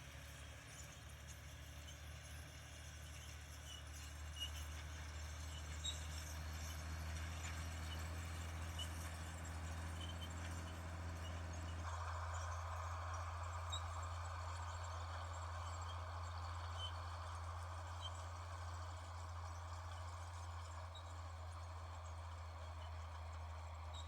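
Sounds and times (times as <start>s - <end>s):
tractor diesel engine humming: 4.6s - 24.0s.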